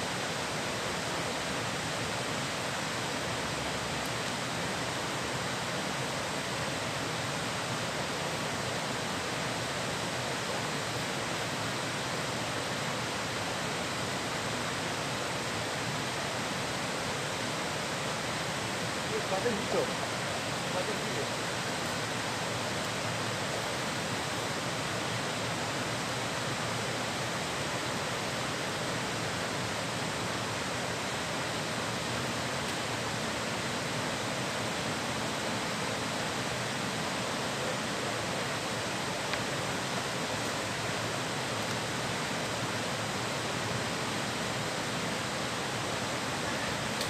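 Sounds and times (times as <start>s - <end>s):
flowing river water rushing: 0.0s - 47.0s.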